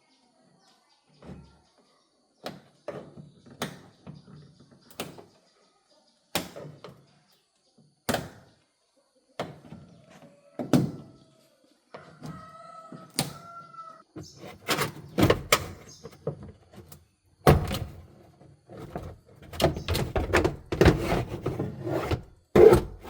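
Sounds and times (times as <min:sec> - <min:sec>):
sharp knocks and clunks: 0:14.2 - 0:23.0.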